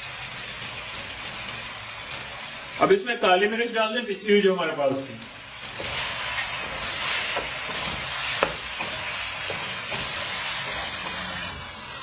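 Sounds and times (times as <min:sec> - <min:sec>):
chicken sizzling in oil: 0:00.0 - 0:12.0
spatula scraping and knocking pan: 0:05.6 - 0:12.0.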